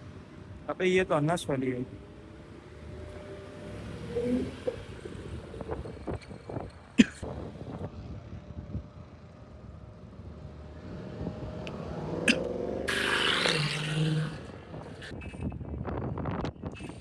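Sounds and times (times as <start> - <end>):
car engine revving: 10.2 - 15.2.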